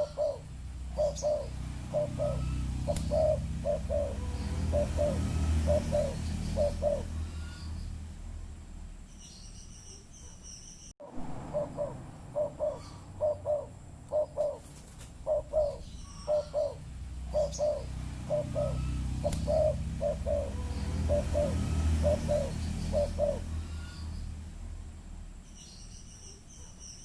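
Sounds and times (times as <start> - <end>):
dove cooing: 0.0 - 7.6, 11.5 - 24.1
small bird chirping: 0.0 - 8.1, 9.0 - 11.0, 11.6 - 24.4, 25.4 - 27.0.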